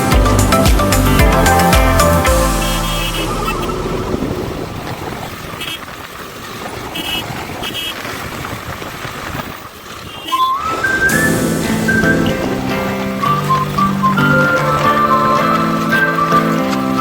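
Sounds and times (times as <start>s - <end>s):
horn beeps: 0.0s - 5.0s, 10.1s - 16.7s
traffic noise: 0.0s - 17.0s
wind: 0.0s - 17.0s
short rising whistle: 2.0s - 4.9s, 10.3s - 17.0s.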